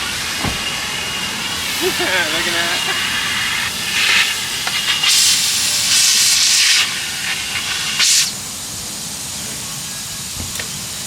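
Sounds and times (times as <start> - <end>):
spray wand hissing: 1.2 - 8.4.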